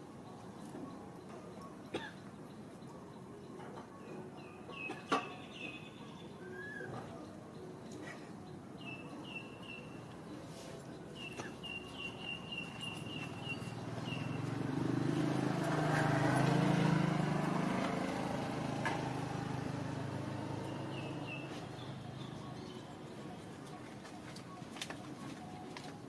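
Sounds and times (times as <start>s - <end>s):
bird chirping: 4.0s - 15.6s, 17.9s - 23.1s
vehicle engine passing by: 13.2s - 22.1s.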